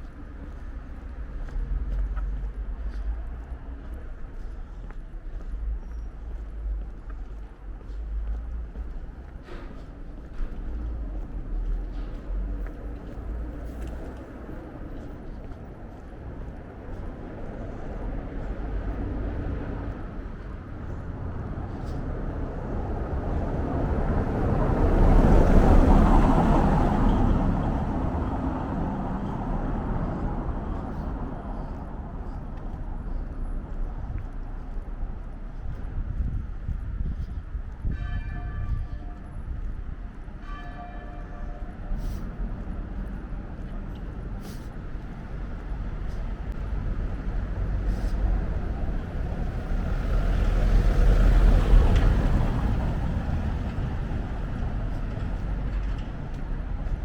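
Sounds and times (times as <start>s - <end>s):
street ambience: 0.0s - 57.0s
vehicle passing by: 42.0s - 57.0s.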